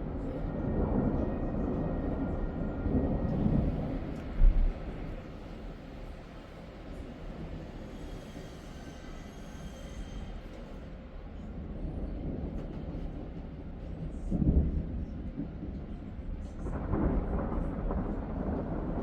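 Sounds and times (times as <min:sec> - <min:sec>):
thunder rumbling: 0:00.0 - 0:05.9, 0:11.6 - 0:19.0.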